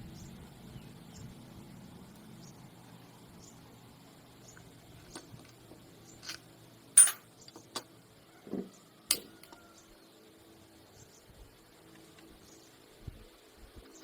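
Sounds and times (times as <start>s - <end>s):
metal tools clinking: 5.0s - 7.9s, 9.1s - 9.6s.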